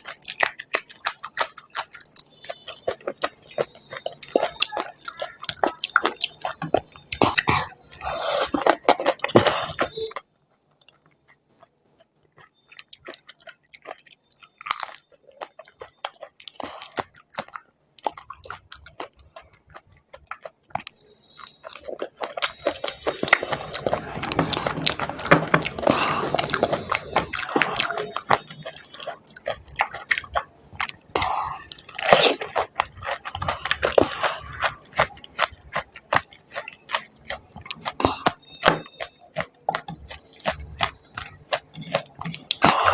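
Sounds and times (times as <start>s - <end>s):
mouth sounds: 0.0s - 10.3s, 20.8s - 42.9s
crunchy chewing: 0.0s - 42.9s.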